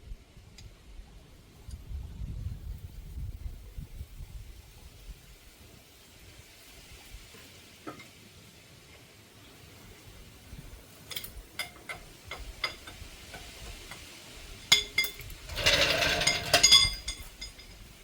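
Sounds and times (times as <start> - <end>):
metal tools clicking and clanking: 11.0 - 18.0
metallic rattling and clinking: 11.0 - 18.0.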